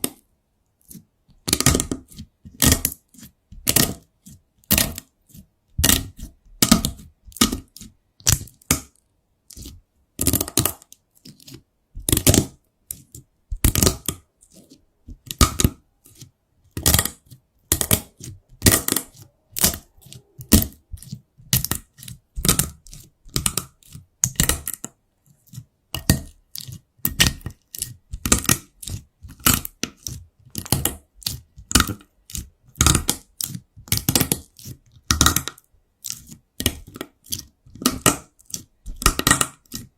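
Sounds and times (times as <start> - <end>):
slime crackling and popping: 16.8 - 24.8.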